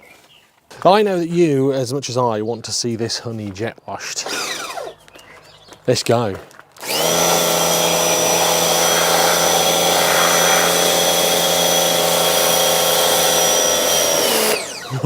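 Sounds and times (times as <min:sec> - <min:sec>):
motor whine: 0:04.2 - 0:05.0, 0:06.8 - 0:15.0
pressure washer water jet hissing: 0:06.8 - 0:15.0.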